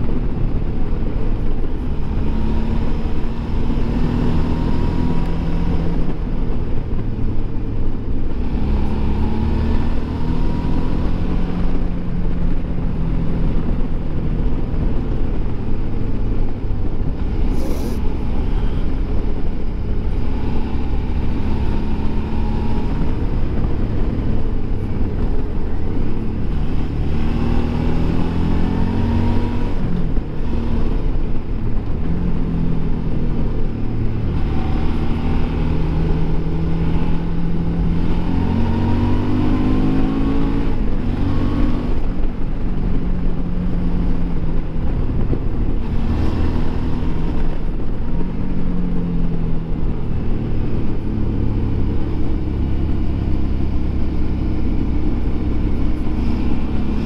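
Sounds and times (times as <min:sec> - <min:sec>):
steady rushing noise: 0:00.0 - 0:57.0
motorcycle engine revving: 0:08.2 - 0:15.1, 0:17.2 - 0:57.0.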